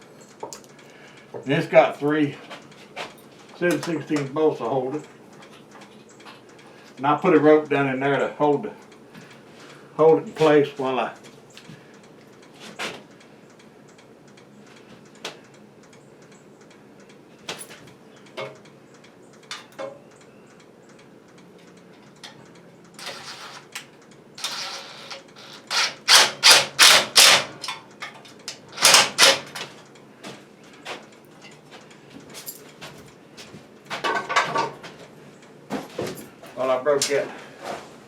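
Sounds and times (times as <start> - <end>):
hand tools clicking and knocking: 17.5 - 18.6, 19.5 - 20.0, 21.6 - 33.0, 33.9 - 35.1.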